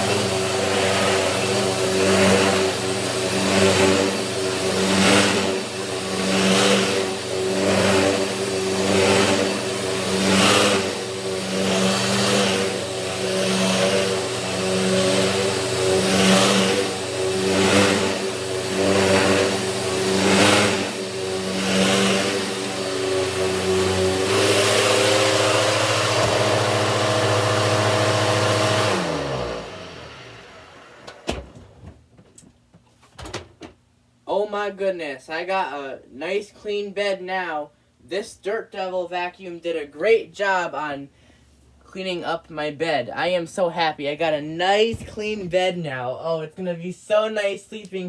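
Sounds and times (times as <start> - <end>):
vacuum motor winding down: 0.0 - 31.5
vacuum cleaner running: 0.0 - 31.9.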